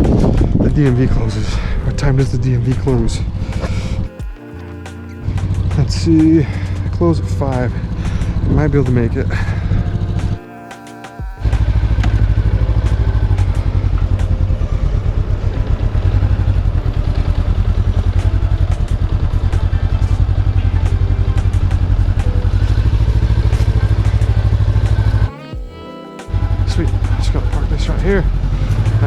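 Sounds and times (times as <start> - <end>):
motorcycle engine running steadily: 11.2 - 25.3.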